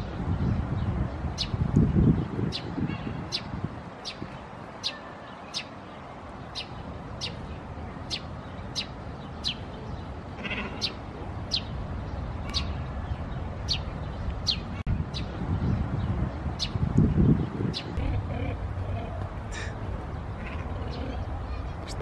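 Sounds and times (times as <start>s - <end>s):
bird calling: 10.4s - 11.7s, 18.0s - 22.0s.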